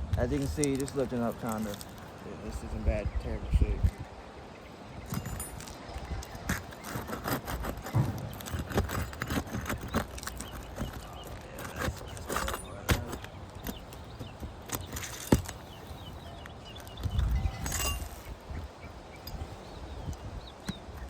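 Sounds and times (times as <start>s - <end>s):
shingle being pried up: 5.1s - 15.8s.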